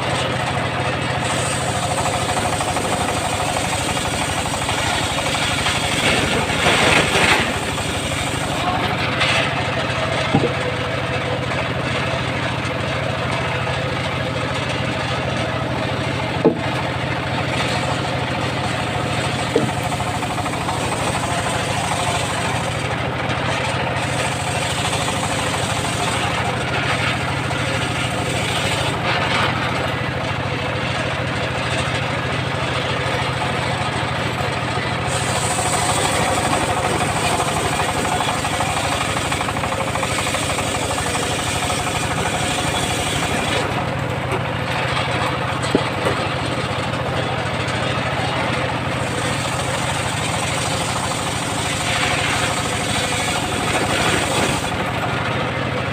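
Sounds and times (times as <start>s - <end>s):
circular saw engine running: 0.0s - 55.9s
sharp knocks: 10.2s - 10.7s, 16.4s - 16.8s, 19.4s - 20.0s.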